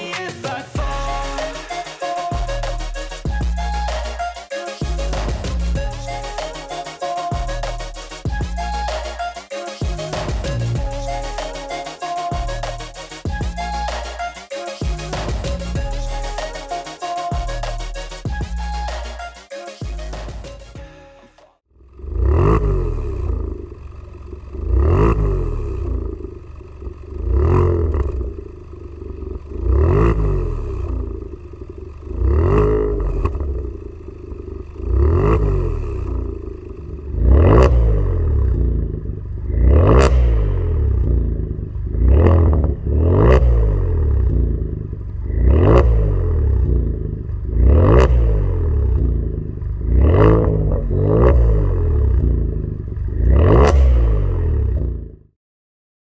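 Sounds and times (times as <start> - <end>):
car engine revving: 21.8 - 54.9
exhaust crackle: 21.8 - 55.2.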